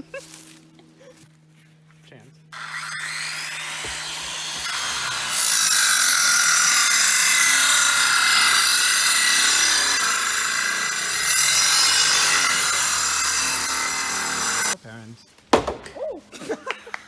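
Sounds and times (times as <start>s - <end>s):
electric machine rasping whine: 2.6s - 14.8s.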